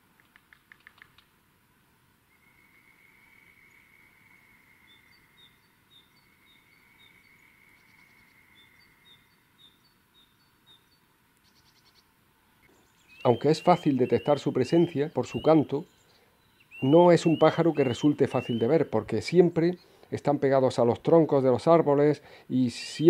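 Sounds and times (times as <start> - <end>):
sharp clicks: 0.1 - 1.3
long steady bird whistles: 2.2 - 19.0
short high whistled birdsong: 12.7 - 19.0.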